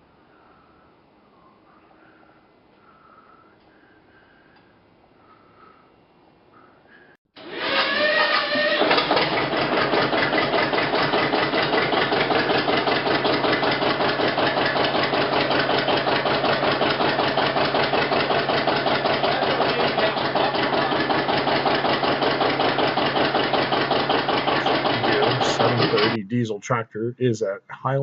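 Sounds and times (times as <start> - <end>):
tractor diesel engine running: 7.4 - 26.2.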